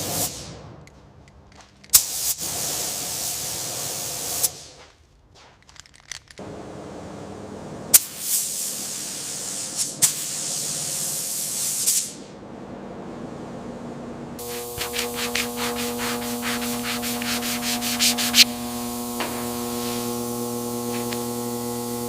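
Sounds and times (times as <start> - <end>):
spray gun hissing: 1.9 - 4.8, 8.0 - 12.2, 14.4 - 22.0.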